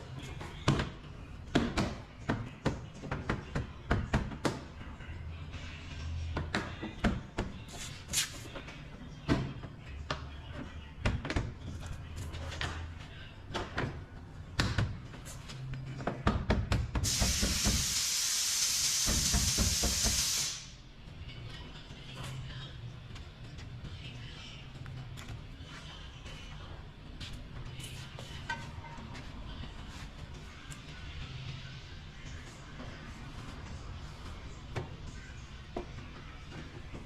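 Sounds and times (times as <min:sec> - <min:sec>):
steady hiss: 0:17.1 - 0:20.8.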